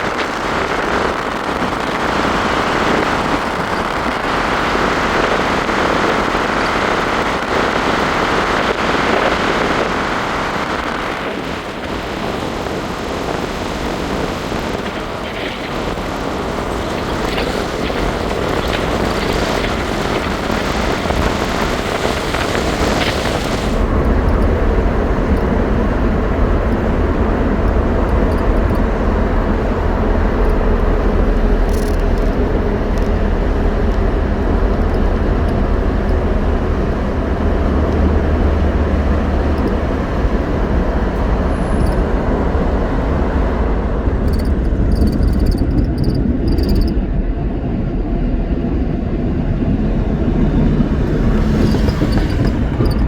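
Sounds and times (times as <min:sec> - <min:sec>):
car road and engine noise: 0:00.0 - 0:53.0
hissing wind noise: 0:00.0 - 0:53.0
deep low rumble: 0:15.0 - 0:53.0.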